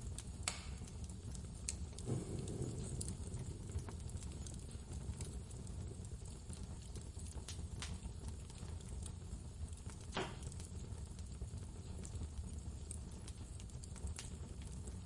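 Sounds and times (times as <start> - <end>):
wood fire crackling: 0.0 - 15.0
blizzard wind rumble: 2.0 - 6.0.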